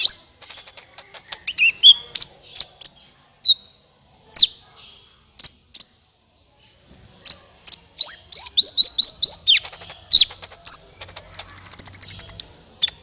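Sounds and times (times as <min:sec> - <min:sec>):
sunbird high chirps: 0:00.0 - 0:03.8, 0:07.2 - 0:13.0.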